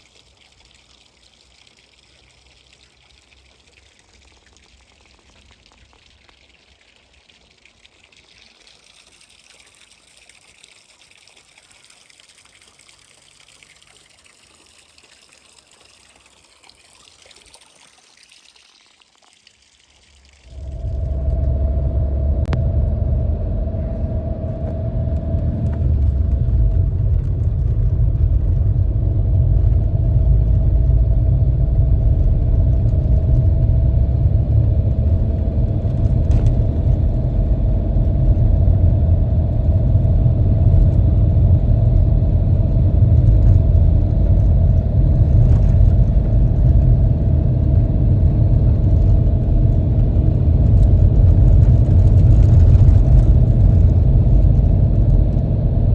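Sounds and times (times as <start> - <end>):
vehicle engine rumbling: 20.4 - 55.9.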